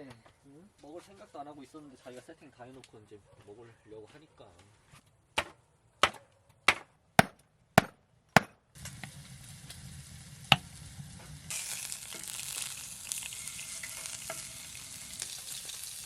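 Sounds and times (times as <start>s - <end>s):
meat sizzling in a pan: 8.8s - 16.0s.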